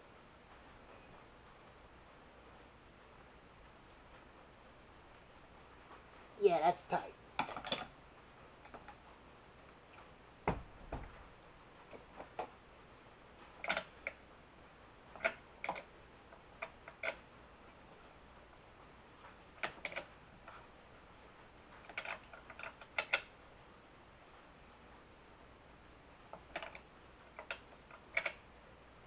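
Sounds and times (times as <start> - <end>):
dull knocks: 10.4 - 11.4.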